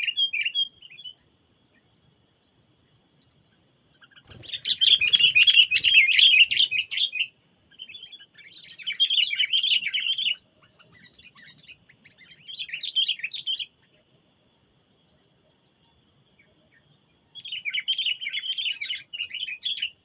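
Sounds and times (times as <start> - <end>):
songbird chattering: 3.5 - 14.1, 16.4 - 20.0.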